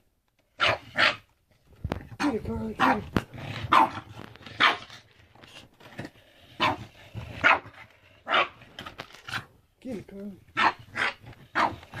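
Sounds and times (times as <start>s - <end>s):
dog barking excitedly: 0.6s - 1.3s, 2.2s - 5.0s, 6.6s - 8.6s, 10.5s - 12.0s.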